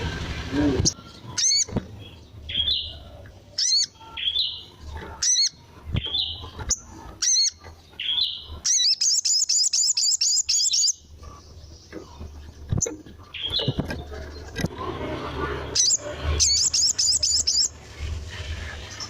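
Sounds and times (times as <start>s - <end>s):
bird sharp high chirps: 0.9s - 3.0s, 3.6s - 11.1s, 15.8s - 17.7s
bird fast run of notes: 15.2s - 17.8s.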